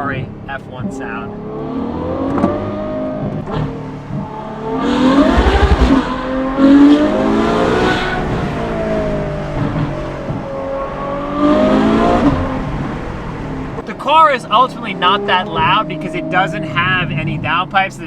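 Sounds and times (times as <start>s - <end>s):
car engine revving high-pitched: 1.3s - 13.8s.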